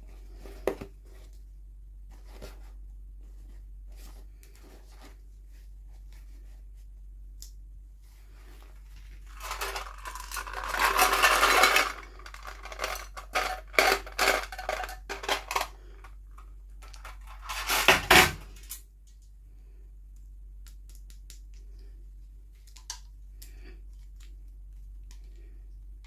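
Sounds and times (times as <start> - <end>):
plastic packaging rustling: 8.3 - 16.2, 16.8 - 18.7.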